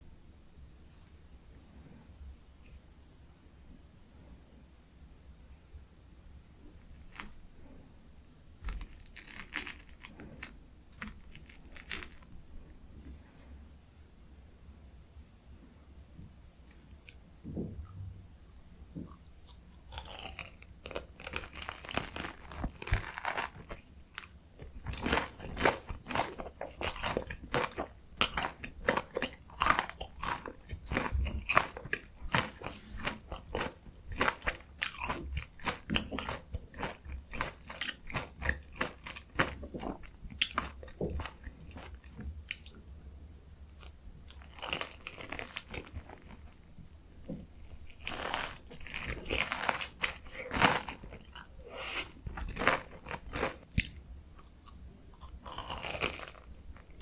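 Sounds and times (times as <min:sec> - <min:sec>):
crunching bites and chewing: 0:08.6 - 0:12.3, 0:19.0 - 0:42.8, 0:43.7 - 0:46.6, 0:47.3 - 0:57.0.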